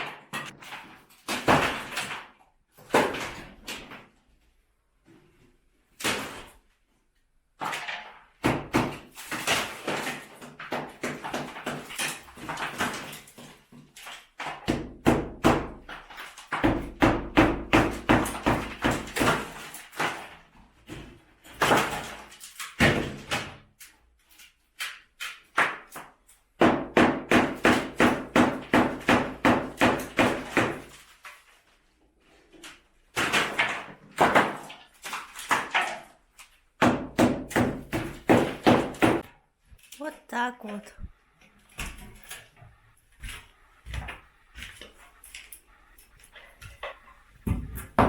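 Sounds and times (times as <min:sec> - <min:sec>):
hammer striking brick wall: 0:07.6 - 0:23.9, 0:24.9 - 0:31.0, 0:36.8 - 0:39.4, 0:46.9 - 0:48.0.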